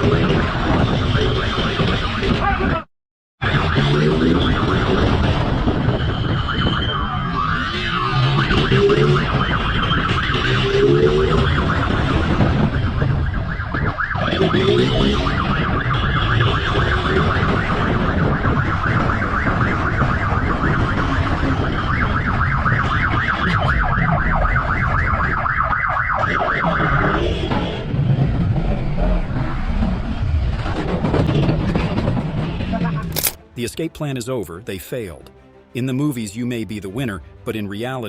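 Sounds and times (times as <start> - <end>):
police siren warbling: 0.0 - 2.7, 3.4 - 29.7
vehicle engine and road noise: 0.0 - 2.8, 3.4 - 34.2.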